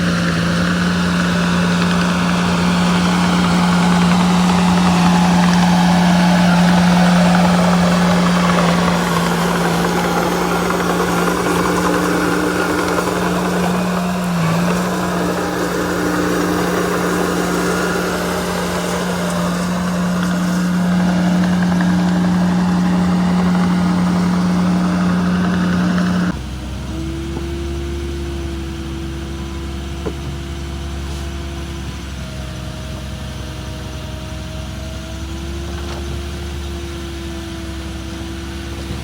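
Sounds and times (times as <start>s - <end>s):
mechanical clatter: 0.0s - 26.4s
diesel engine droning: 0.0s - 39.0s.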